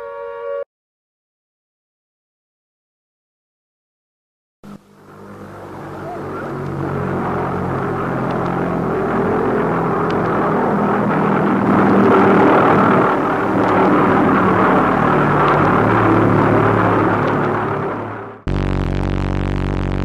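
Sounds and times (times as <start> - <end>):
aircraft engines droning: 4.7 - 18.5.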